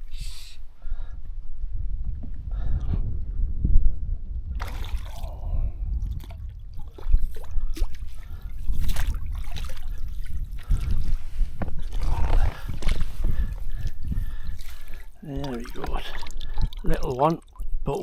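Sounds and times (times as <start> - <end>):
wind rumbling on microphone: 0.0 - 18.0
water splashing and trickling: 4.5 - 18.0.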